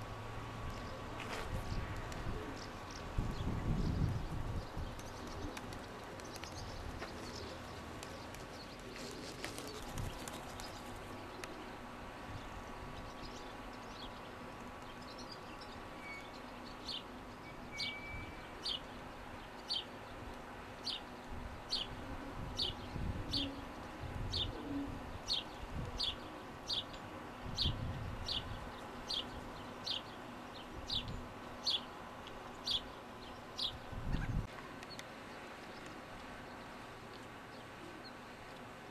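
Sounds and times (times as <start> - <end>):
bird chirping: 14.9 - 19.0.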